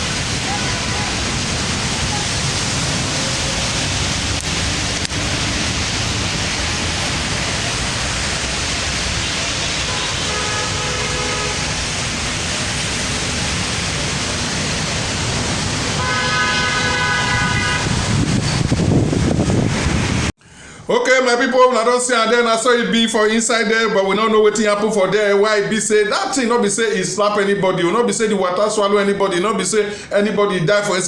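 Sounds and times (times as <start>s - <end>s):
car horn: 0.0s - 1.3s, 9.7s - 12.0s, 15.9s - 18.1s
road traffic noise: 0.0s - 20.9s, 29.2s - 30.2s.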